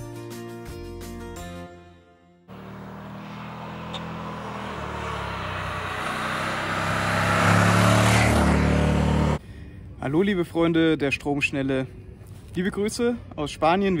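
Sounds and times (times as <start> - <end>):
motorcycle engine approaching: 2.5 - 9.4.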